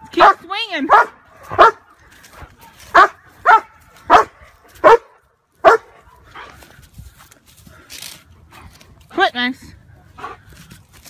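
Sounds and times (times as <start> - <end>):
dog barking: 0.2 - 1.9, 2.9 - 6.2.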